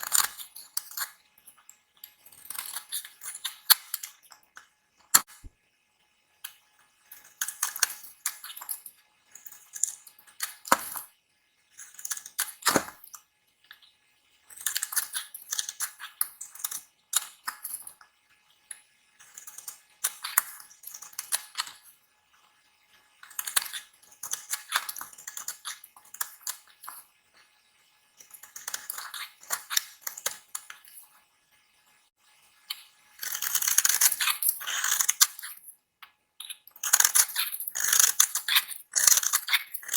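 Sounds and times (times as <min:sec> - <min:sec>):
blade scraping dry soap: 0:33.2 - 0:35.7, 0:36.8 - 0:39.9.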